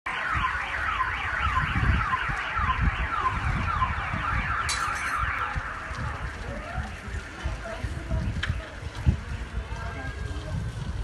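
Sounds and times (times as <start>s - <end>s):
car alarm falling wail: 0.1s - 5.8s.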